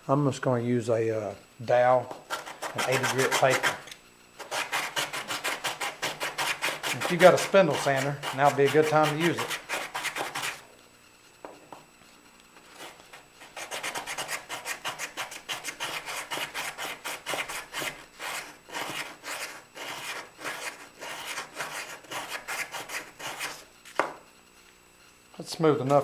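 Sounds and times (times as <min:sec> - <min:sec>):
sandpaper rubbing on wood: 0:02.3 - 0:10.6, 0:12.8 - 0:23.7.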